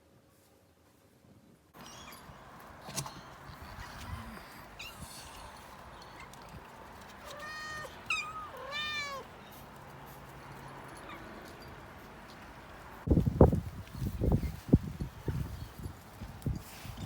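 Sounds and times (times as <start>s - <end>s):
cat meowing: 7.2s - 9.3s.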